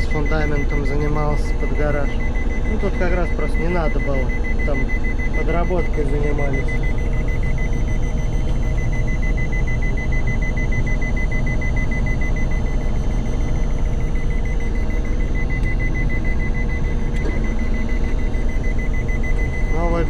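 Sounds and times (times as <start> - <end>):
combine harvester engine drone: 0.0 - 20.0
rapid warning buzzer beeps: 0.0 - 20.0.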